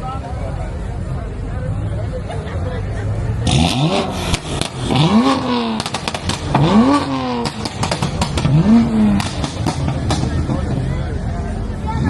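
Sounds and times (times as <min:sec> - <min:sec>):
car engine revving: 0:02.9 - 0:12.0
exhaust pops: 0:03.4 - 0:11.0.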